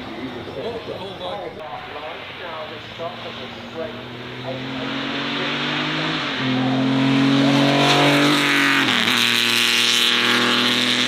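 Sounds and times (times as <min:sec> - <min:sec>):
race car engine accelerating: 0:02.2 - 0:11.0.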